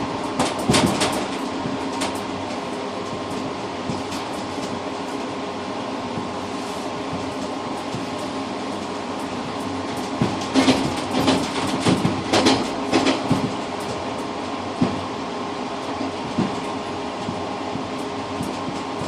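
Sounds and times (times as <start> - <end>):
train wheels knocking on track: 0.0 - 2.2, 9.2 - 15.2, 15.8 - 19.0
train rumble: 0.0 - 19.0.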